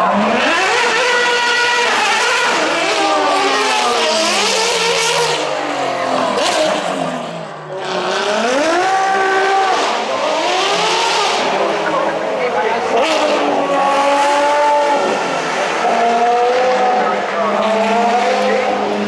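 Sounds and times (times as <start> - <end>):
racing car engine revving: 0.0 - 19.0.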